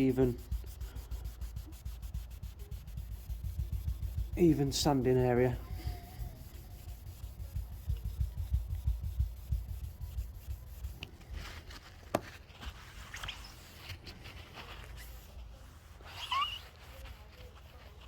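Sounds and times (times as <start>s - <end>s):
wet-sanding rubbing strokes: 0.0s - 18.0s.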